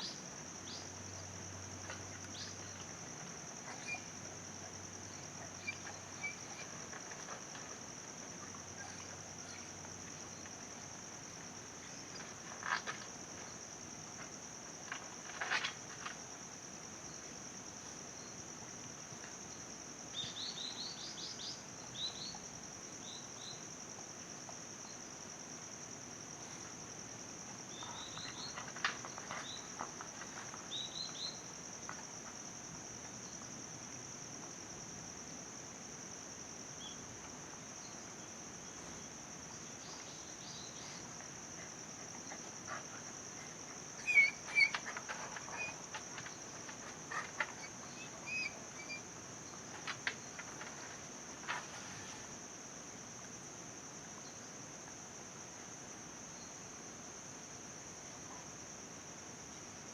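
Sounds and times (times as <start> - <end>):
insects droning: 0.0 - 59.9
small birds chirping: 42.2 - 49.1.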